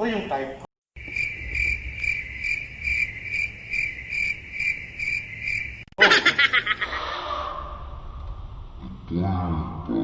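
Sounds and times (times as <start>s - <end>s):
cricket chirping: 1.0s - 6.0s
burst of laughter: 6.0s - 7.2s.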